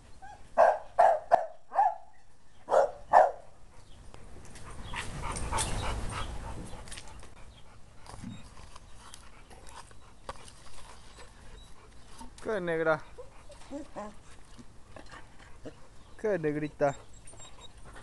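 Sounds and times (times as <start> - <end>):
dog barking: 0.6 - 2.1, 2.7 - 3.4.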